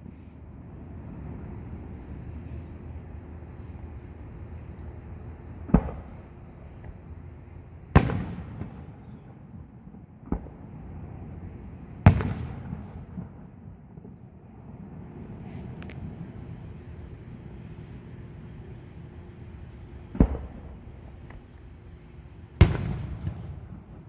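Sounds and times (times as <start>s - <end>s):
fireworks booming: 5.4s - 15.8s, 19.8s - 24.0s.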